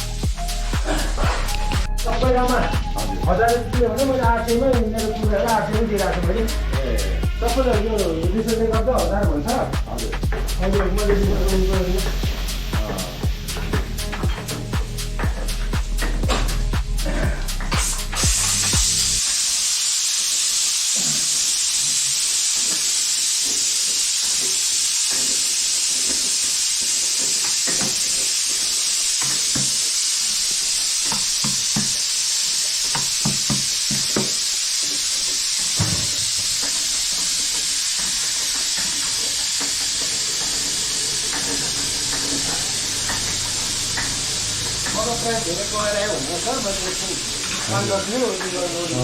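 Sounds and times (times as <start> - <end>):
food sizzling in a pan: 0.0 - 49.0.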